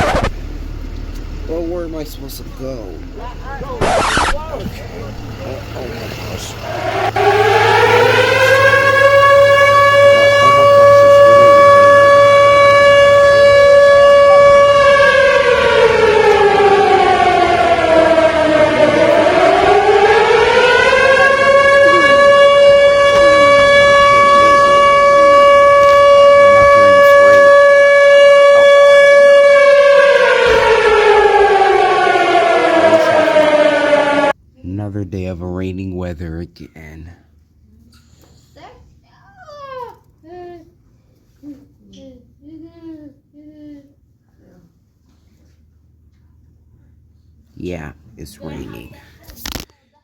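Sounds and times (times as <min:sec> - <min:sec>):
warning siren wailing: 0:00.0 - 0:34.4.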